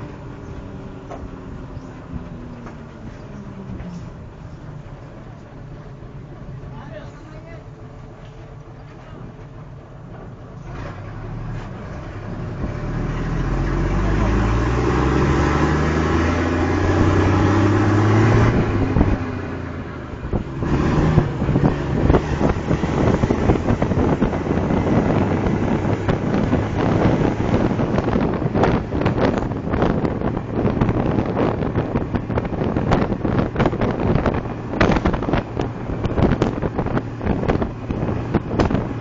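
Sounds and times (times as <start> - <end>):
fire truck engine revving: 10.6 - 39.0
wind buffeting microphone: 12.1 - 39.0.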